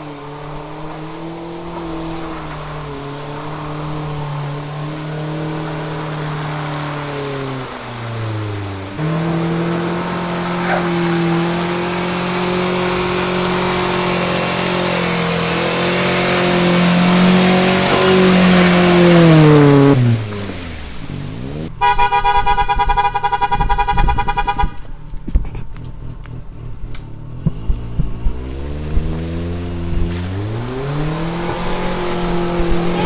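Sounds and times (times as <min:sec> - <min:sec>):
car engine revving hard: 0:00.0 - 0:33.0.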